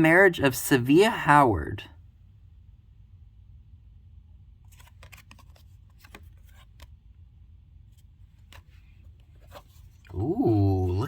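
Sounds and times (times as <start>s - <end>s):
low steady hum: 0.0s - 11.0s
paper crackling and rustling: 4.6s - 6.9s.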